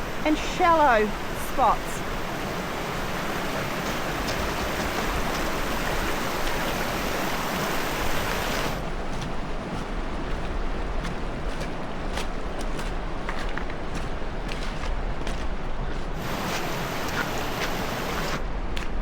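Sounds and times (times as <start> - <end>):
river water rushing: 0.0 - 9.0, 16.2 - 18.4.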